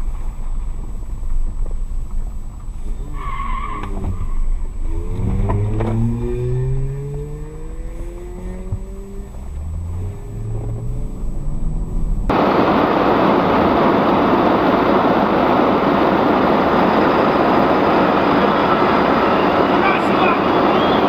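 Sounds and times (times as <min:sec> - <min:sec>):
car engine accelerating: 0:00.0 - 0:21.0
car road noise: 0:00.0 - 0:21.0
tyre squeal: 0:02.8 - 0:05.3, 0:18.5 - 0:21.0.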